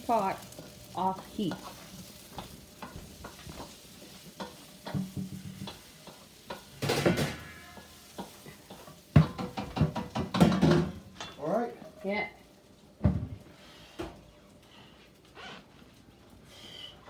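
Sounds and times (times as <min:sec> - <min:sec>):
food sizzling in a pan: 0:00.0 - 0:14.8
cookware clattering: 0:04.4 - 0:11.5.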